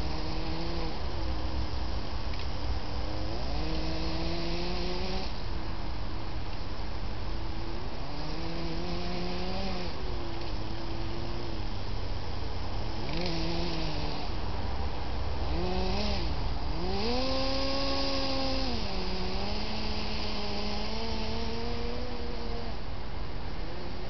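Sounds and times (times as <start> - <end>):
electric motors whining: 12.7 - 14.4, 15.5 - 22.8.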